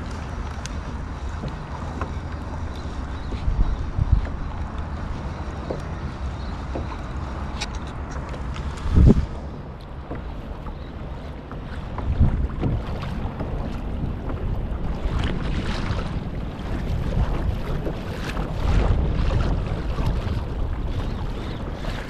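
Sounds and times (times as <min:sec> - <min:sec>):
water sloshing against kayak: 0:00.0 - 0:22.0
wind buffeting microphone: 0:00.0 - 0:22.0.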